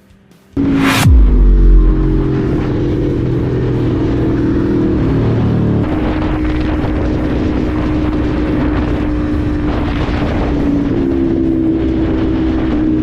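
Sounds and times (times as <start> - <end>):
motorcycle engine running: 0.6 - 9.9.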